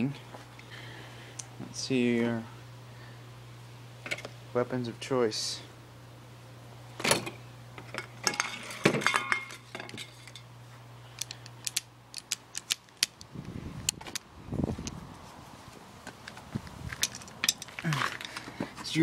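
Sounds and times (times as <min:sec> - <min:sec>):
metal screwdrivers clinking: 0:11.2 - 0:13.2, 0:16.9 - 0:18.5.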